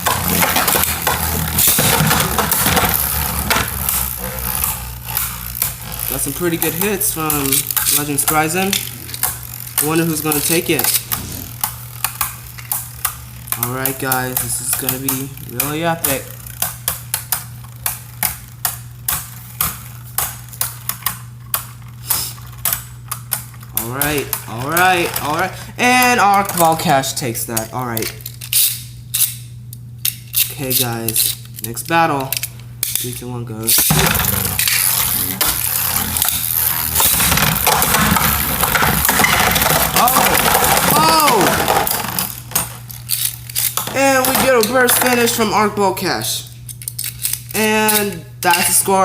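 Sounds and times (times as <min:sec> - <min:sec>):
tops clacking together: 0:00.0 - 0:26.8, 0:33.7 - 0:45.4
spinning tops whirring: 0:00.0 - 0:49.0
steady low hum: 0:00.0 - 0:49.0.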